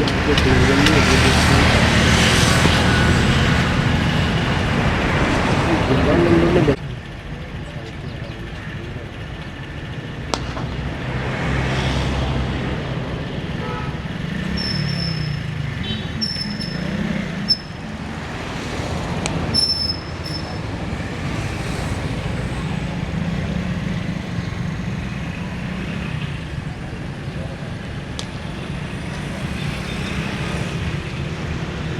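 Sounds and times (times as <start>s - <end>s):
road traffic rumble: 0.0s - 31.9s
high chirps: 16.2s - 17.9s.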